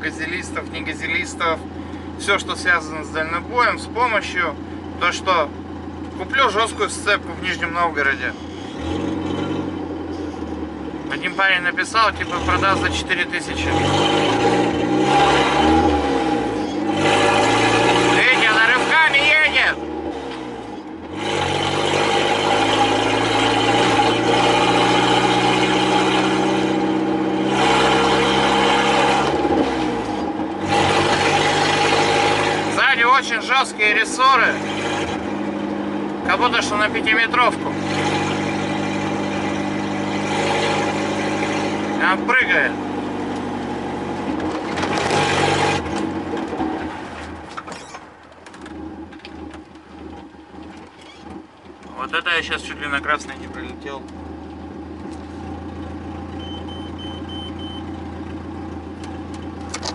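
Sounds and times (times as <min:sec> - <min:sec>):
light truck engine running: 0:00.0 - 0:15.6, 0:47.2 - 0:59.9
road noise and rattling: 0:00.0 - 0:59.9
truck engine drone: 0:00.0 - 0:59.9.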